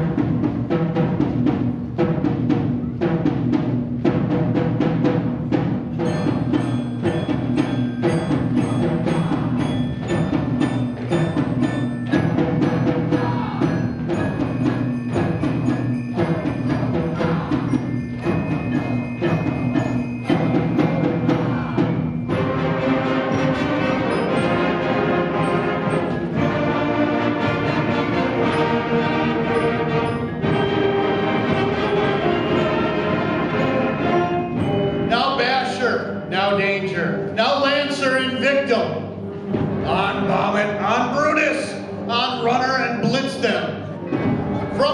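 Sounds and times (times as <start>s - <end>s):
concert band playing: 0.0s - 44.9s
rhythmic struck percussion: 0.0s - 44.9s.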